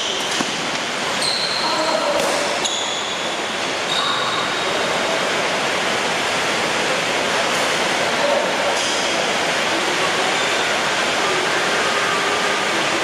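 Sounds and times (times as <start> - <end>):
heavy rain falling: 3.2 - 13.0.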